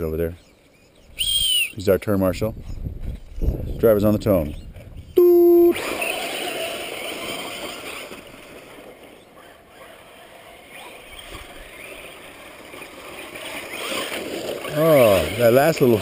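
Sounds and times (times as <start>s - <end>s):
rising and falling whines: 5.2s - 8.2s
radio-controlled race cars running: 5.8s - 16.0s.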